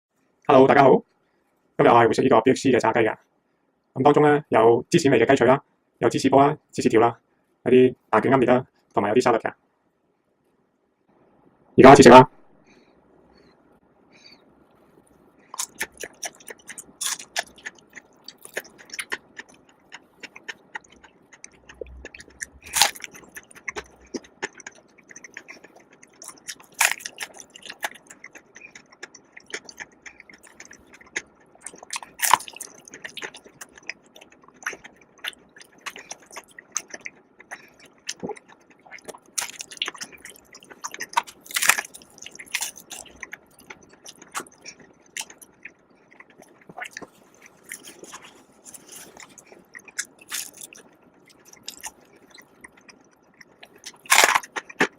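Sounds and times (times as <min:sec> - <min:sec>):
crunching and chewing fried chicken: 0:14.9 - 0:54.9.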